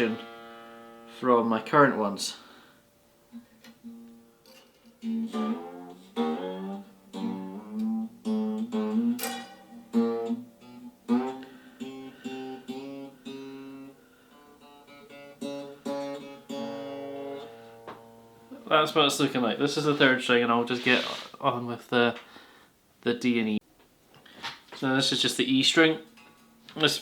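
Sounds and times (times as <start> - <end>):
acoustic guitar plucked: 0.0 - 2.2, 3.3 - 19.4.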